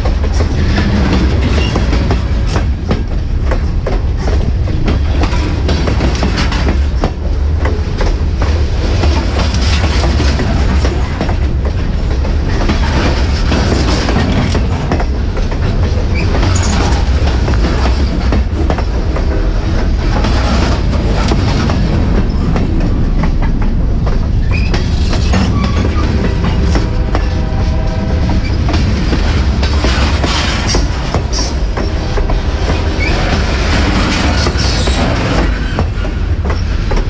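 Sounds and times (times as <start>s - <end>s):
freight train rumbling past: 0.0s - 37.0s
wheels clicking over rail joints: 0.0s - 37.0s
wheel squeal: 16.1s - 17.0s, 24.4s - 26.1s.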